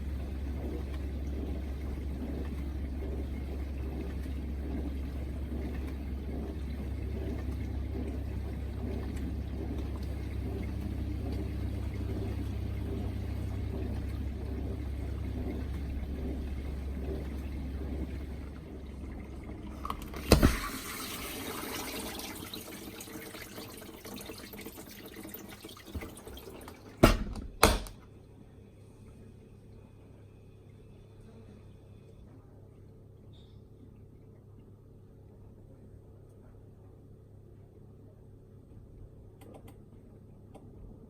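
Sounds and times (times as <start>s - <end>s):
dishwasher pump humming: 0.0s - 28.1s.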